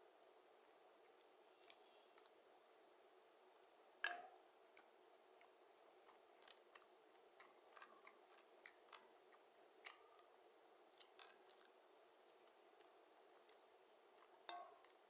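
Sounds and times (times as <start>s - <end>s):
mouth clicks of eating: 1.1s - 2.4s, 4.8s - 15.0s.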